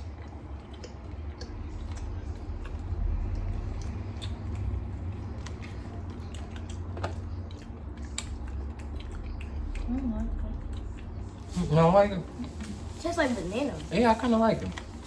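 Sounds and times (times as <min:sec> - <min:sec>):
people chewing: 0:00.0 - 0:15.0
steady low rumble: 0:00.0 - 0:15.0.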